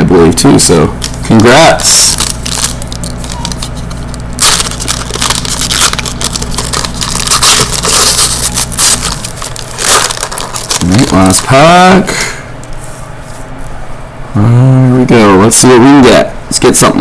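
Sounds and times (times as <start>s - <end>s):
foil wrappers crinkling: 0.9s - 12.0s.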